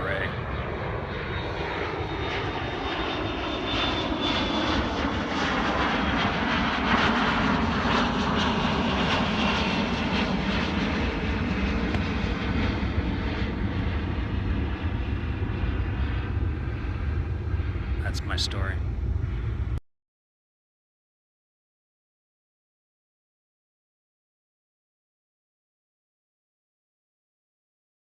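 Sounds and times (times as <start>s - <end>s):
loud steady rushing roar: 0.0s - 19.8s.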